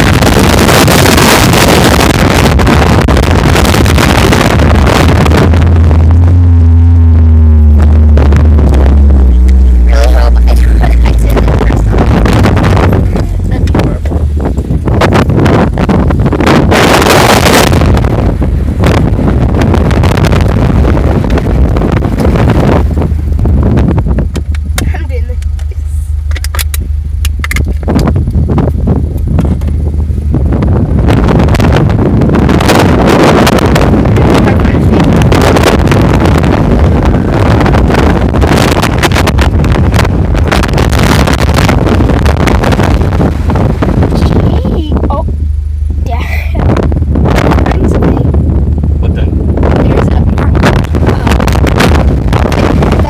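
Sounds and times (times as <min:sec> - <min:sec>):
vehicle rumbling off-road: 0:00.0 - 0:53.0
wind buffeting microphone: 0:00.0 - 0:53.0.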